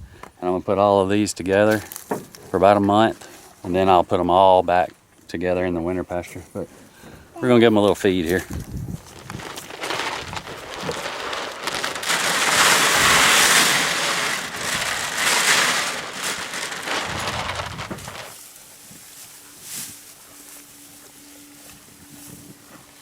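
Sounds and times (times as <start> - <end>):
grain pouring into a trough: 9.4 - 18.4.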